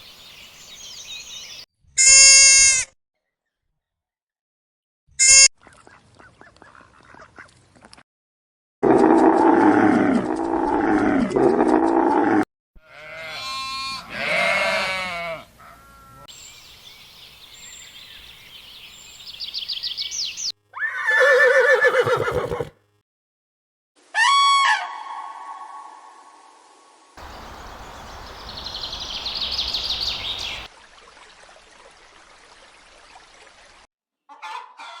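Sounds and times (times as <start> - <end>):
animal calls: 20.8 - 22.7.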